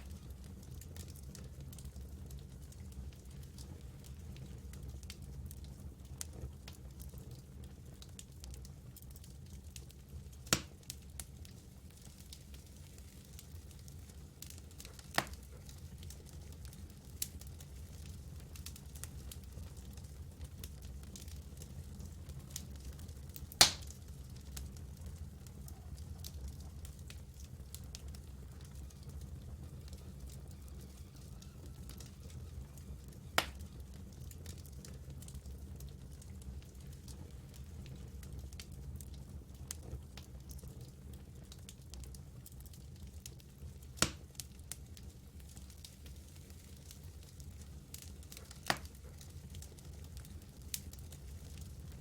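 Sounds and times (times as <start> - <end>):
campfire crackling: 0.0 - 52.0
loud snap of fire: 8.0 - 43.4, 44.0 - 51.7.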